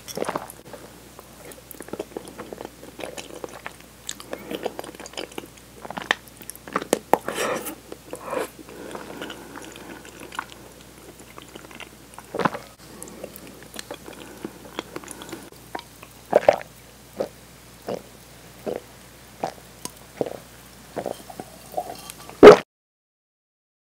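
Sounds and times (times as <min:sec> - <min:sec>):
chewing with wet mouth clicks: 0:01.4 - 0:07.0, 0:08.0 - 0:17.3.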